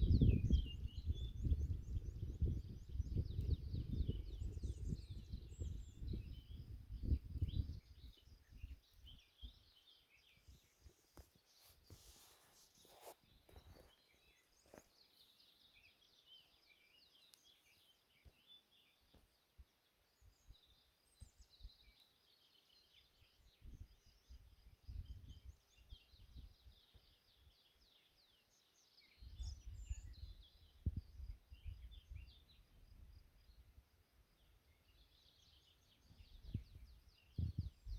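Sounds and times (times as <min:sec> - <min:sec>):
wind rumble on microphone: 0:00.0 - 0:09.8, 0:23.5 - 0:27.6, 0:29.2 - 0:33.9, 0:35.1 - 0:37.9
small birds chirping and trilling: 0:00.0 - 0:37.9.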